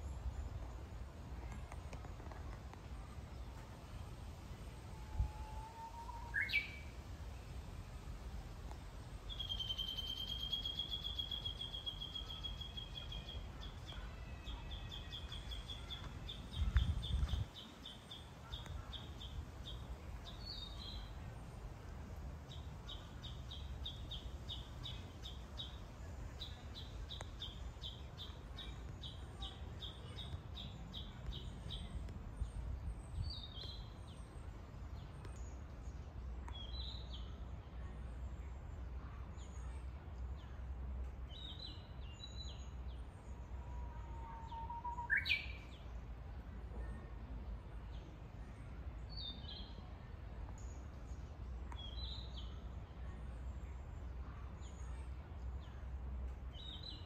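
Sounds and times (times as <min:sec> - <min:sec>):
small birds singing: 0:05.9 - 0:07.0, 0:09.1 - 0:21.2, 0:22.4 - 0:40.6, 0:41.3 - 0:46.0, 0:46.8 - 0:49.9, 0:50.5 - 0:57.0.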